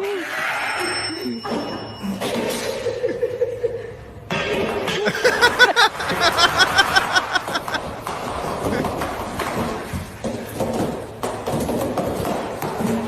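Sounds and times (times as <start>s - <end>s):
people laughing: 2.7s - 4.1s, 4.9s - 8.0s.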